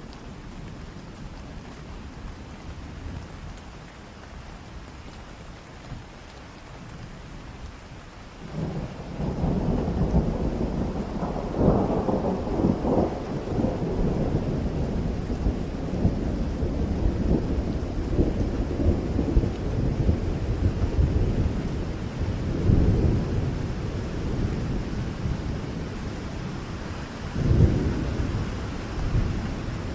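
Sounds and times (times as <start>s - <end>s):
steady rain: 0.0s - 29.9s
thunder rumbling: 8.5s - 29.9s.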